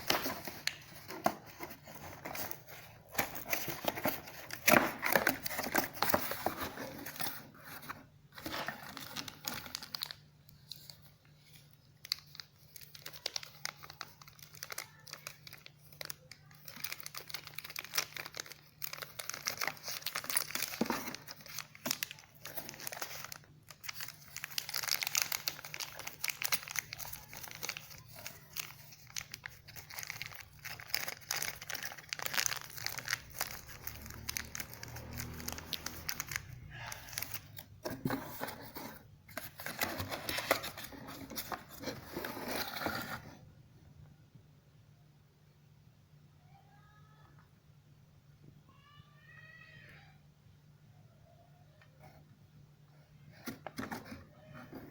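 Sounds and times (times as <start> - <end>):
packaging crinkling and rustling: 0.0 - 43.4
packaging tearing: 12.0 - 38.8.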